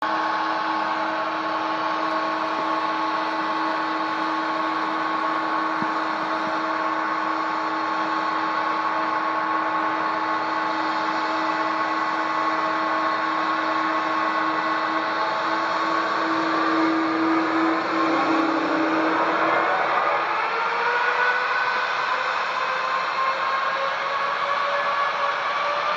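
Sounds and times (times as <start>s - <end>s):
constant tonal hum: 0.0s - 25.9s
jet engines running: 0.1s - 25.9s.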